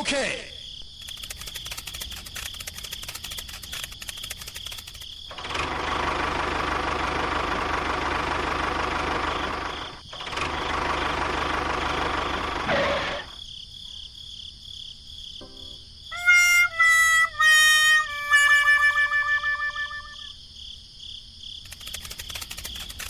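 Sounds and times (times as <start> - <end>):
small motor running: 1.2 - 13.4, 21.7 - 23.0.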